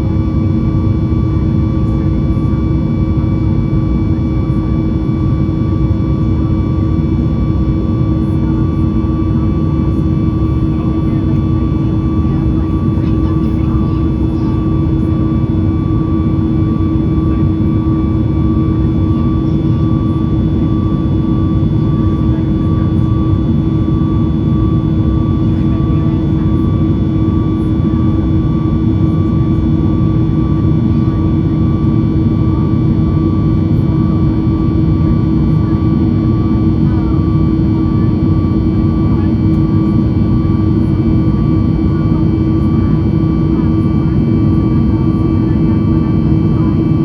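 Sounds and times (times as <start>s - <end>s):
airplane cabin engine rush: 0.0s - 47.0s.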